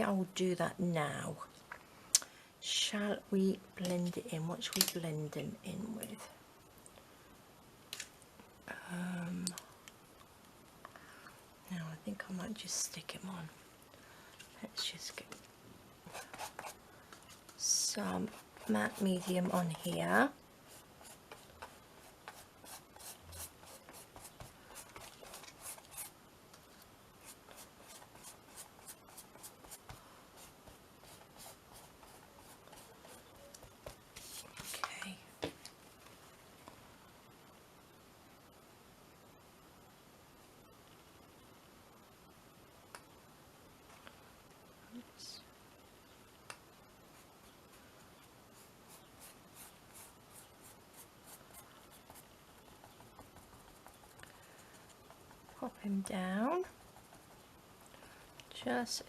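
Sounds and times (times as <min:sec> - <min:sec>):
paintbrush stroking canvas: 0:16.0 - 0:34.9, 0:47.1 - 0:57.9.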